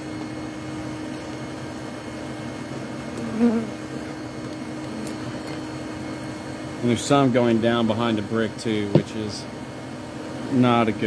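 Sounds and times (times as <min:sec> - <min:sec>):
honeybees buzzing: 0:02.9 - 0:05.9.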